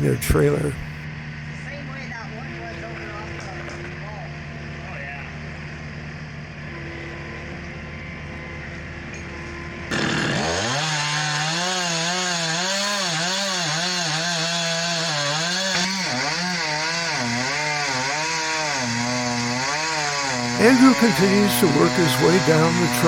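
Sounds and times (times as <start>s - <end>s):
chainsaw cutting wood: 9.9s - 23.0s.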